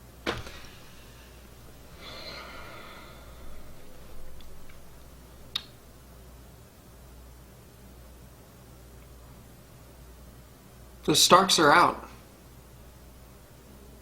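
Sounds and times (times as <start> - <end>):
person sighing: 1.9 - 4.4.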